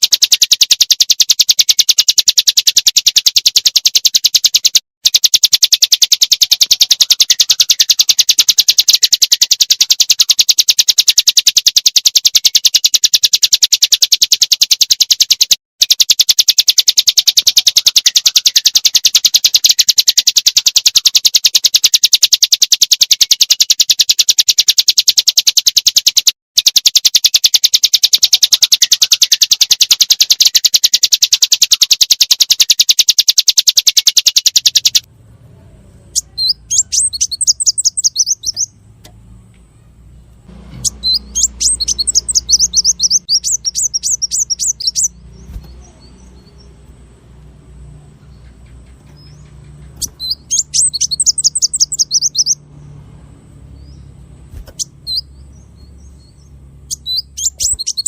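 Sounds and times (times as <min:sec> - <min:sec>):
songbirds singing: 0:00.0 - 0:26.3, 0:27.0 - 0:58.0
low background rumble: 0:35.0 - 0:58.0.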